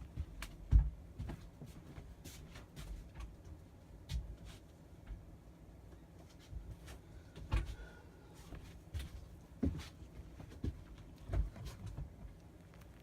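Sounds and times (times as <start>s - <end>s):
handling knocks and thumps: 9.0s - 12.4s.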